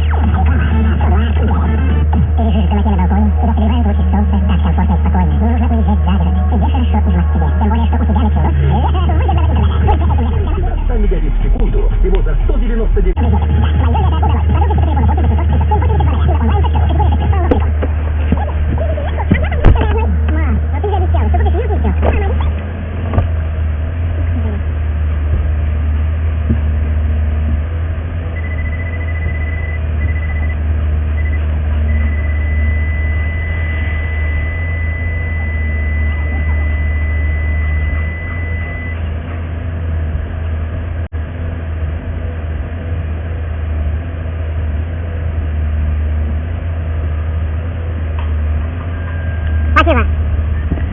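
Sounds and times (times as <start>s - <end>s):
car engine and road rumble: 0.0s - 50.9s
high electronic warning beep: 28.3s - 39.1s.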